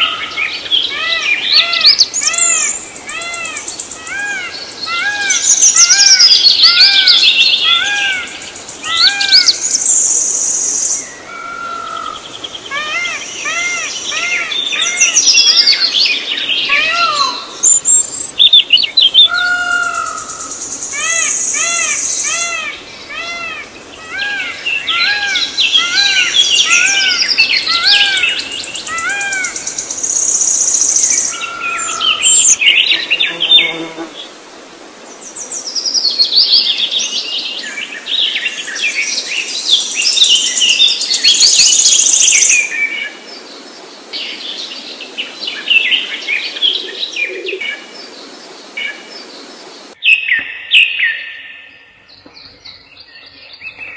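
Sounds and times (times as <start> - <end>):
birds chirping: 0.0 - 34.4, 35.1 - 53.9
bird rise-and-fall call: 16.6 - 29.8.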